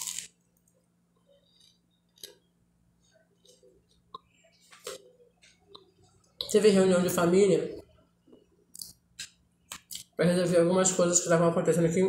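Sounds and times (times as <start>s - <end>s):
faint chewing: 0.0s - 6.5s.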